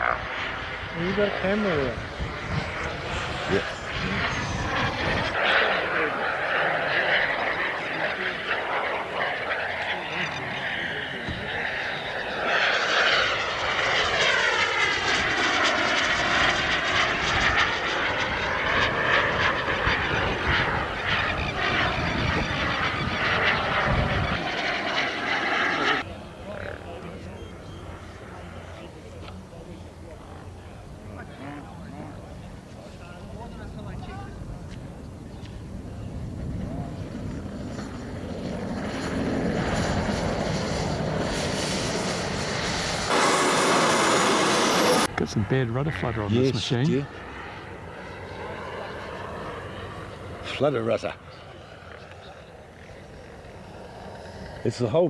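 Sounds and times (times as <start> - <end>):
model jet turbine whine: 0.0 - 31.0, 31.8 - 55.0.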